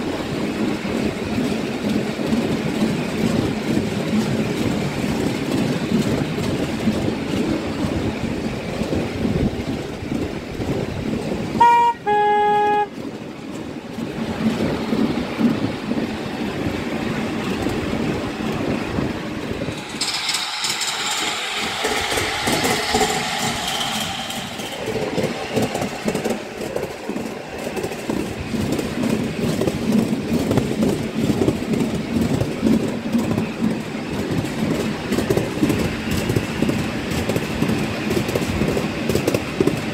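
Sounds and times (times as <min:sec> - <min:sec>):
train wheels rattling over rails: 0:00.0 - 0:39.9
two-note train horn toot: 0:11.6 - 0:12.9.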